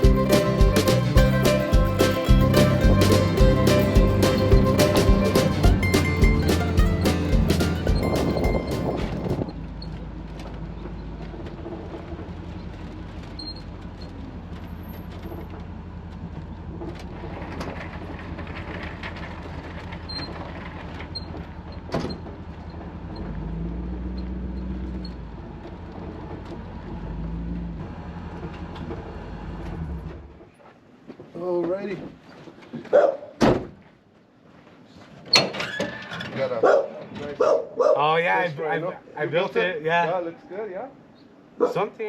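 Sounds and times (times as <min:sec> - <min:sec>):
vehicle engine and road noise: 0:00.0 - 0:31.0.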